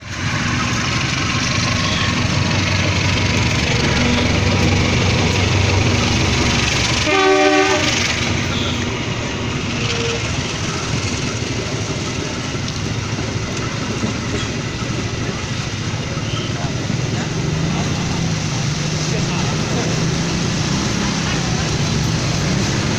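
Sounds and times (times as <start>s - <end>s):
train rumbling past: 0.0s - 22.9s
train horn: 7.0s - 8.9s, 9.8s - 10.4s.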